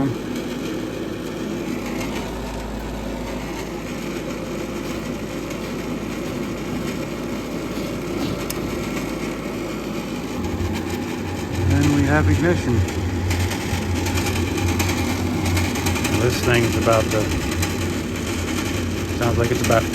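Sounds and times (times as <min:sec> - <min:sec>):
furnace inducer motor running roughly: 0:00.0 - 0:19.9
low hum: 0:00.0 - 0:19.9.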